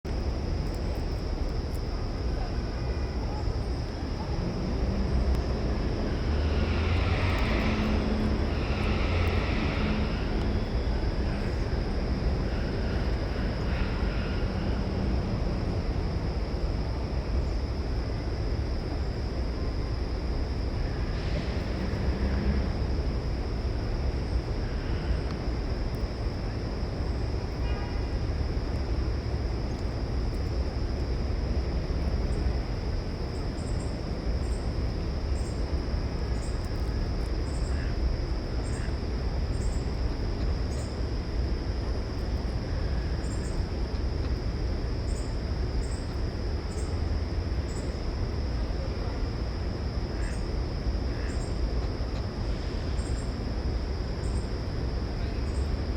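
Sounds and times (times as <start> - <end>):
low outdoor rumble: 0.0 - 55.9
high hiss: 3.9 - 17.1.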